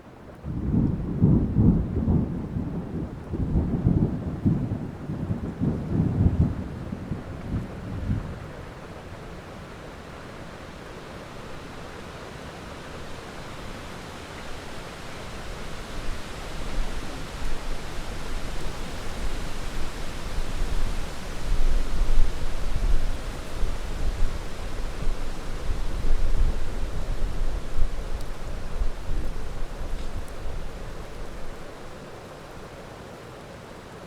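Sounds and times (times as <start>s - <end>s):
heavy rain: 0.1s - 34.0s
rolling thunder rumble: 0.4s - 8.7s.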